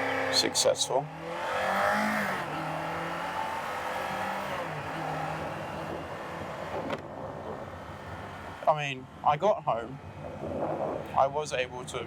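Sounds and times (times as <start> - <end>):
motorcycle engine revving: 0.0 - 7.6
wind noise on microphone: 5.8 - 8.6, 9.8 - 12.0.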